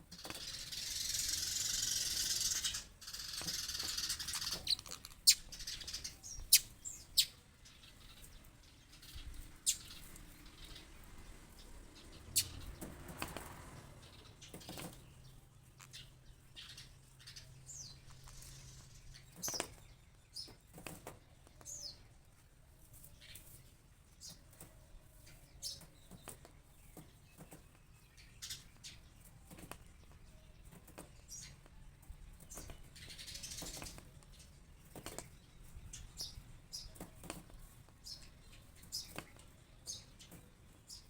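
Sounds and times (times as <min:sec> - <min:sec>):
high falling bird chirps: 0:00.1 - 0:12.8.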